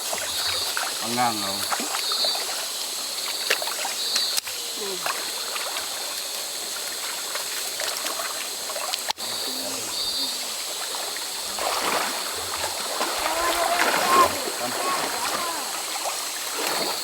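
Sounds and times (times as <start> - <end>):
river water babbling over stones: 5.1 - 17.0.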